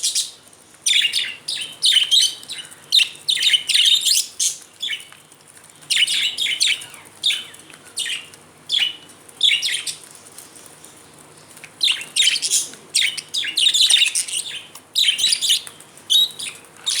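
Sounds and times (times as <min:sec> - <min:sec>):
budgerigars chirping: 0:00.9 - 0:05.0, 0:11.8 - 0:17.0.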